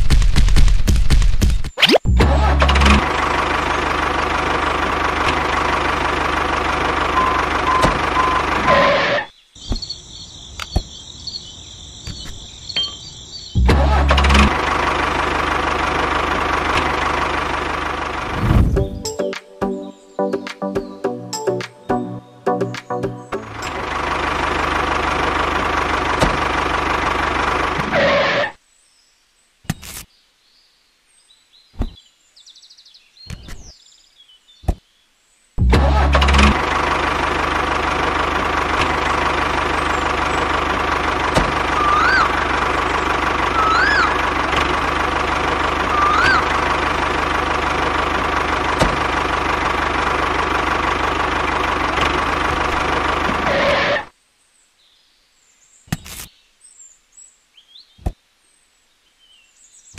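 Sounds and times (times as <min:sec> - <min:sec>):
tractor engine running: 0:02.1 - 0:09.9, 0:12.0 - 0:19.3, 0:22.5 - 0:28.4, 0:35.6 - 0:54.1
rising and falling chirps: 0:07.0 - 0:13.7, 0:41.6 - 0:44.8, 0:45.6 - 0:47.0.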